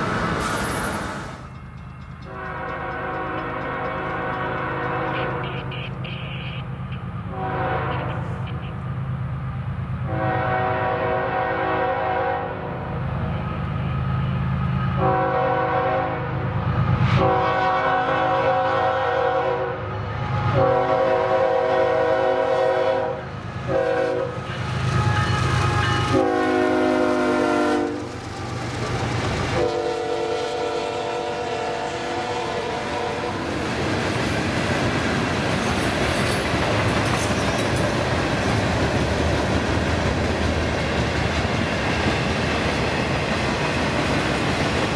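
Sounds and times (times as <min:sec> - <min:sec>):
train wheels clattering on rail: 0:00.0 - 0:09.2, 0:23.2 - 0:44.9
locomotive air horn blasts: 0:02.3 - 0:08.9, 0:10.1 - 0:12.7, 0:15.0 - 0:16.3, 0:17.2 - 0:28.2, 0:29.6 - 0:33.5.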